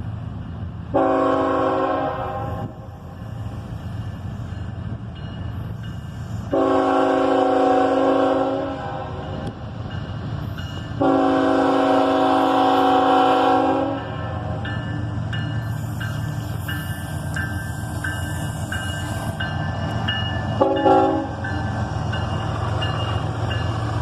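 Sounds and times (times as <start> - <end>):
train rumbling past: 0.0 - 24.0
locomotive air horn blasts: 0.9 - 2.8, 6.5 - 9.2, 11.0 - 14.5, 20.6 - 21.4.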